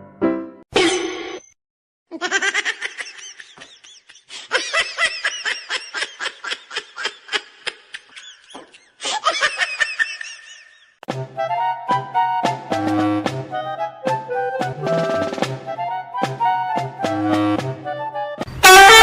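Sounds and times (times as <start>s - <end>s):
high-pitched laughter: 2.1s - 10.9s.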